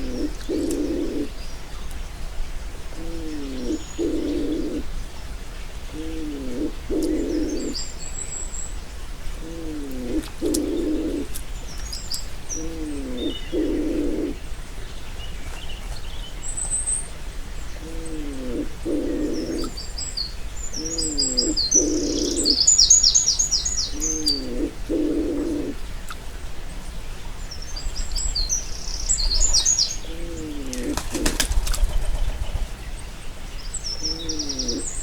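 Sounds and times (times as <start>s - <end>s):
low two-part hooting call: 0.0s - 1.3s, 3.0s - 4.9s, 6.0s - 7.8s, 9.4s - 11.3s, 12.6s - 14.4s, 17.8s - 19.8s, 20.8s - 23.0s, 23.9s - 25.8s, 30.0s - 31.4s, 33.9s - 35.0s
small birds chirping: 0.0s - 35.0s.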